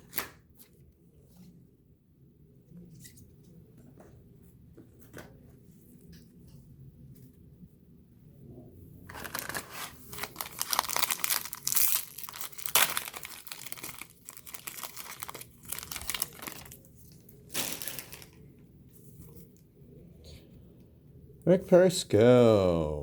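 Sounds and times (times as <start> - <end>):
foil wrapper crinkling: 9.1 - 18.5.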